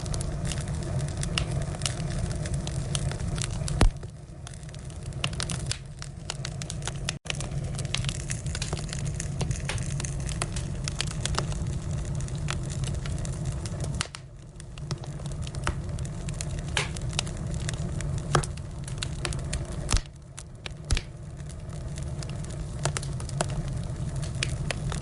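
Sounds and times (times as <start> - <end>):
firewood crackling and popping: 0.0 - 25.0
low fire rumble: 0.0 - 25.0.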